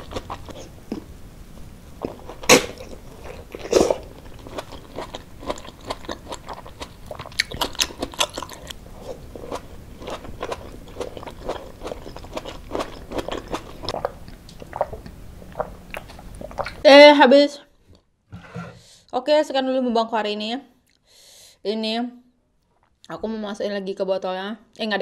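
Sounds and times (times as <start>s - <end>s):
chewing rice close up: 0.0s - 1.1s, 2.0s - 16.8s.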